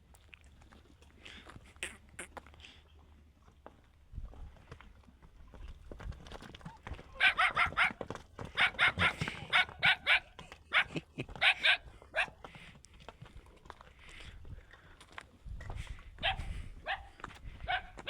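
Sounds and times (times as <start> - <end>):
dog barking: 7.2 - 8.0, 8.6 - 12.4, 16.2 - 18.0.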